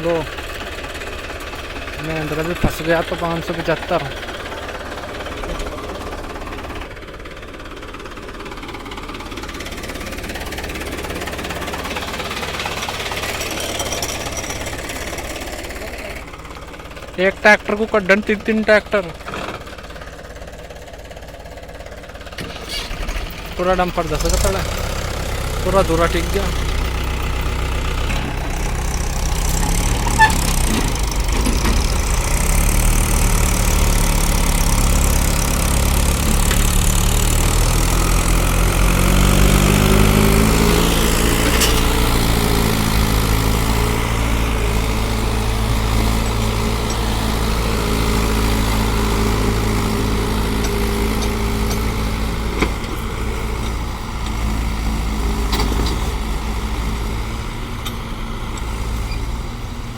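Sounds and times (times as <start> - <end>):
tractor diesel engines under load: 0.0 - 59.9.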